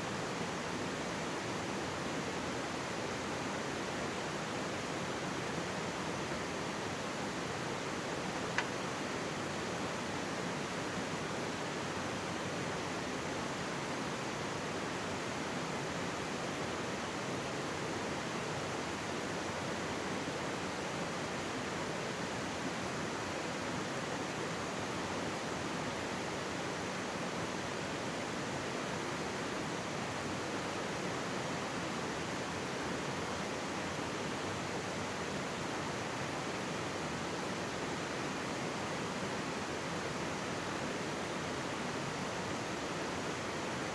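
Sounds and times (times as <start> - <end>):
stream water rushing: 0.0 - 43.9.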